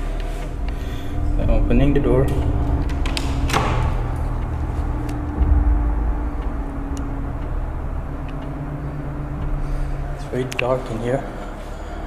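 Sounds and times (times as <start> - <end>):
faint hum: 0.0 - 12.0
steady low rumble: 0.0 - 12.0
door opening: 0.2 - 7.0.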